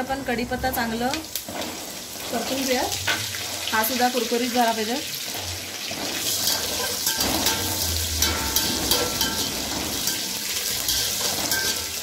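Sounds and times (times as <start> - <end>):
nuts sizzling in hot oil: 0.0 - 12.0
wire stirrer scraping a pot: 5.4 - 12.0.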